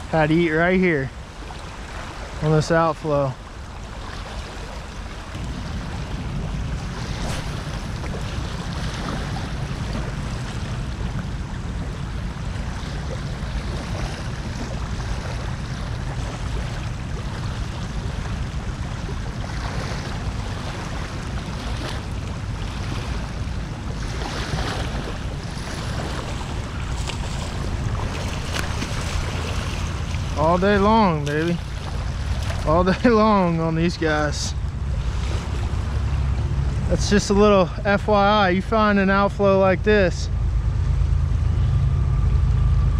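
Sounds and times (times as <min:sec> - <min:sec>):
water splashes: 0:00.0 - 0:42.9
wind buffeting microphone: 0:00.0 - 0:42.9.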